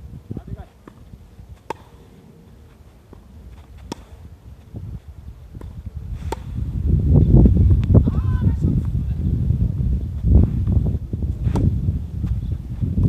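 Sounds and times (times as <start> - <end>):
wind rumble on microphone: 0.0 - 13.0
tennis balls struck with rackets: 0.6 - 2.2, 3.0 - 4.8, 5.5 - 6.7, 11.4 - 12.4.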